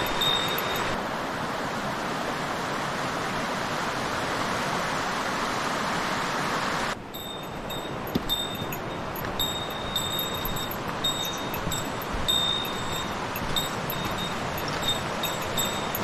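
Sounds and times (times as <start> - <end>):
faint high ringing tones: 0.0 - 1.0, 7.0 - 16.0
river water rushing: 0.0 - 16.0.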